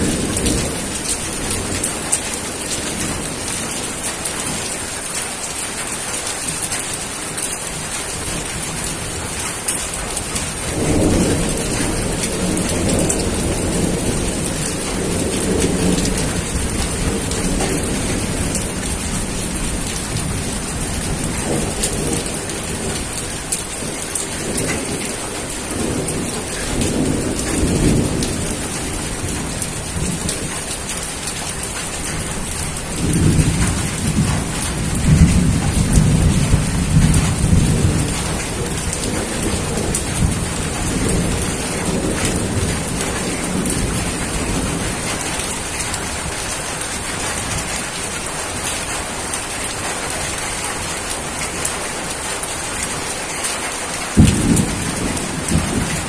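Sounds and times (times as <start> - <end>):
rolling thunder: 0.0 - 3.8, 10.2 - 47.8, 54.0 - 56.0
steady rain: 0.0 - 56.0.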